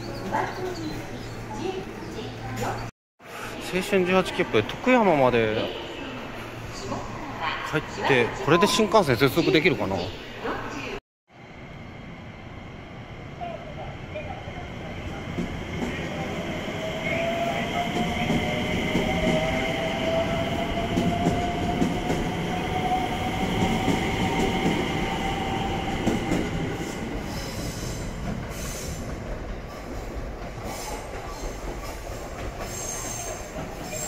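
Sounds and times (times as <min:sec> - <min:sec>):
electric train rumbling with whine: 0:11.3 - 0:34.0.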